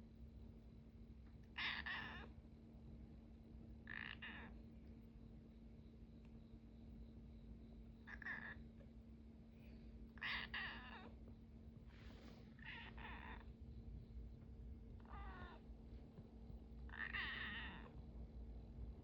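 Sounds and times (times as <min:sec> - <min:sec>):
kitten meowing: 0:16.9 - 0:17.9.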